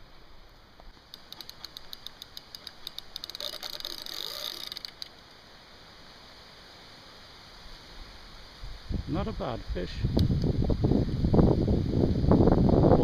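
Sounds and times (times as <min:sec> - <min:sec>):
fishing reel drag buzzing: 0:01.1 - 0:05.1.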